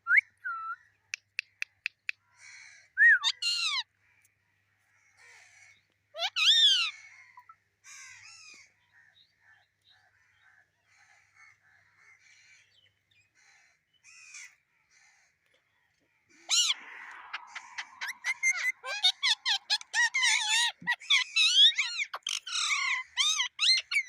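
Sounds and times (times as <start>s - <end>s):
parrot squawking: 16.5s - 24.0s.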